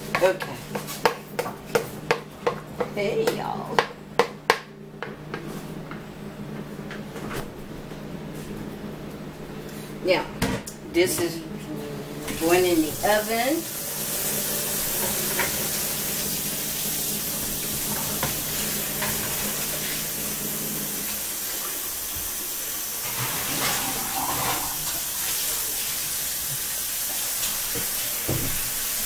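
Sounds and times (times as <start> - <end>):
food sizzling in a pan: 12.9 - 29.0.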